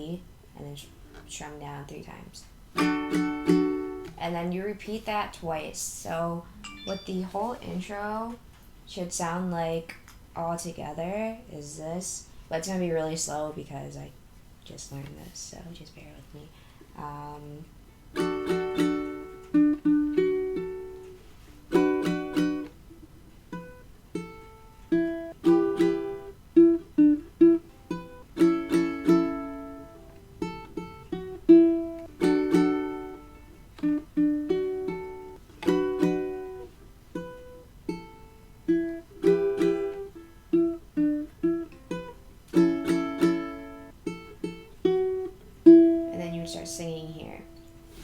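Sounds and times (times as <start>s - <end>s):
ukulele strumming and plucking: 2.7s - 4.4s, 6.6s - 8.0s, 17.4s - 48.0s.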